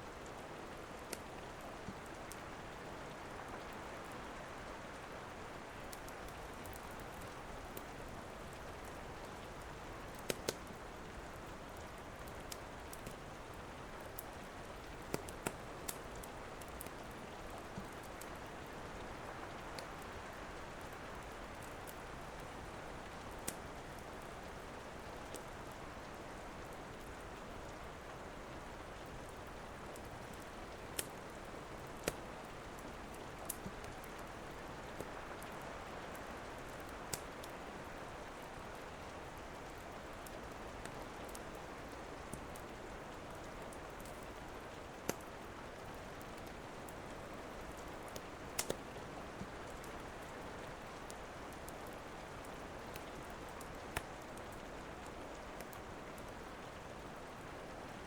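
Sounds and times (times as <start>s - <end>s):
steady rain falling: 0.0s - 58.0s
wood fire crackling and popping: 0.2s - 2.4s, 5.6s - 24.6s, 29.3s - 37.6s, 39.4s - 50.4s, 51.0s - 56.4s.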